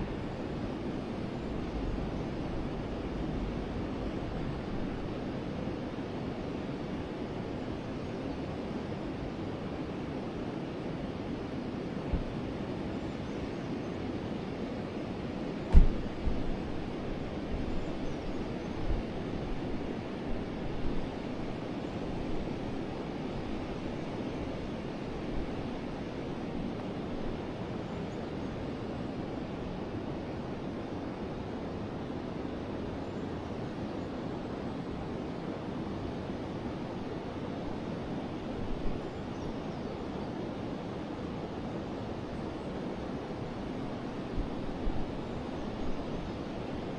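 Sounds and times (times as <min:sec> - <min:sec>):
low rumbling bumps: 0:15.7 - 0:16.6.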